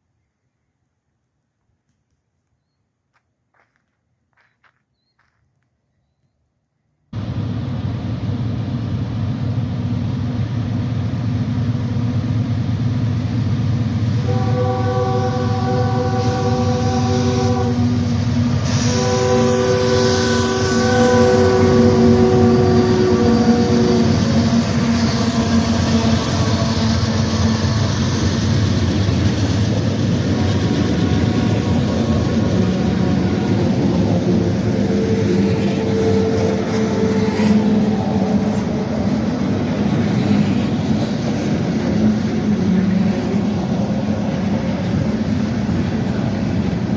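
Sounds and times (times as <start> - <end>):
low engine drone: 7.2 - 13.7
diesel locomotives rumbling: 7.2 - 46.9
multi-chime train horn: 14.2 - 17.9, 18.7 - 27.2, 30.3 - 33.6, 34.8 - 38.6.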